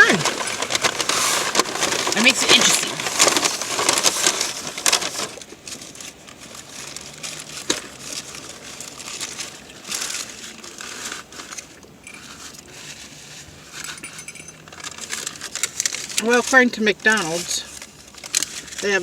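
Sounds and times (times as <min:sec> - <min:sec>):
paper wrapping crinkling: 0:00.0 - 0:19.0.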